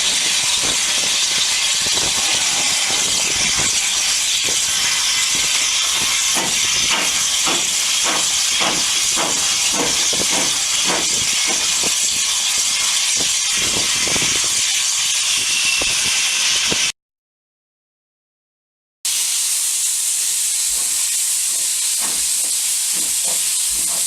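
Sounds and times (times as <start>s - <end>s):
steam hissing: 0.0s - 16.9s, 19.1s - 24.0s.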